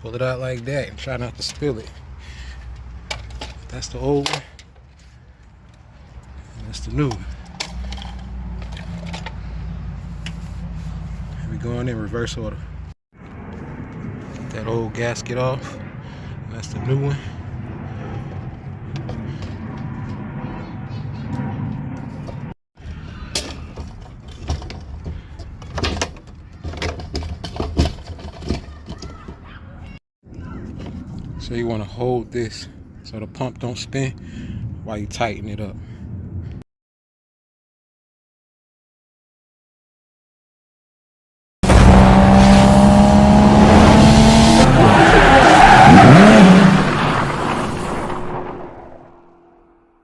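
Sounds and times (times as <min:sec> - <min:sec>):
fuel pump parts clicking: 0:07.1 - 0:09.5
loud vehicle engine: 0:41.6 - 0:49.8.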